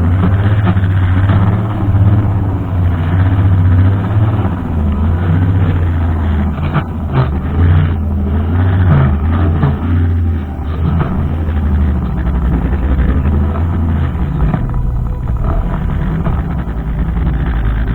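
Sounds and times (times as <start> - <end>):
brushcutter engine droning: 0.0 - 17.9.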